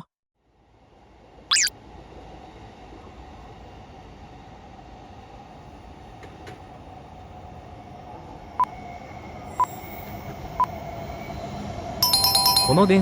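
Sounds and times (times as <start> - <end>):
train hum approaching: 0.5 - 13.0
short beeps: 1.5 - 1.7.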